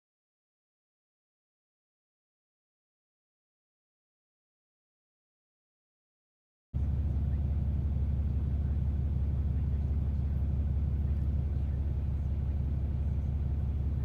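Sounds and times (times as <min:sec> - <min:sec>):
diesel engine idling: 0:06.8 - 0:14.0.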